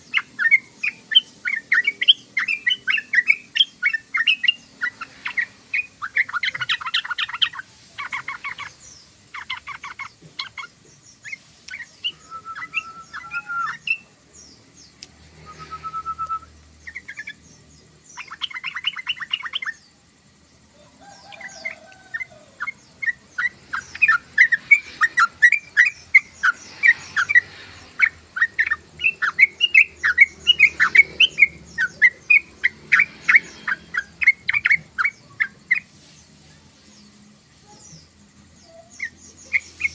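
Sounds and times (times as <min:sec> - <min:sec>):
bird chattering calls: 0:00.0 - 0:14.0, 0:21.1 - 0:35.9
bird whistled notes: 0:11.8 - 0:14.0, 0:15.4 - 0:17.3.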